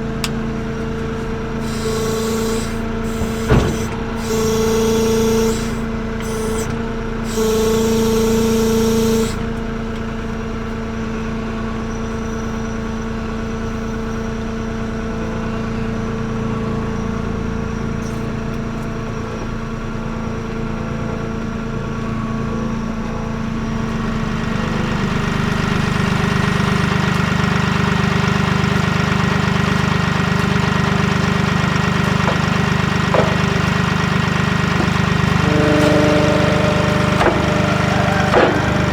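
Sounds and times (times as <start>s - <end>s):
tractor diesel engine running: 0.0s - 10.7s, 23.4s - 38.9s
high steady whine: 23.7s - 38.9s.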